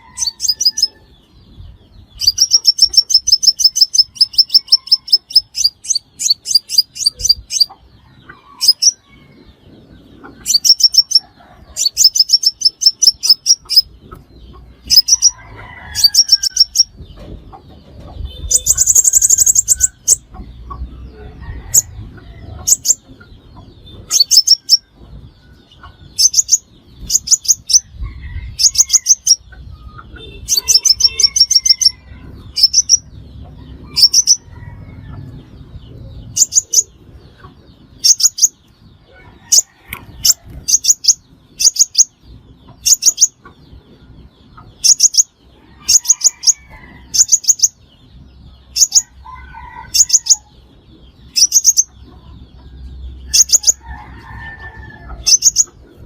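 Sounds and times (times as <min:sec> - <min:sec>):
sunbird calling: 0:18.3 - 0:20.3.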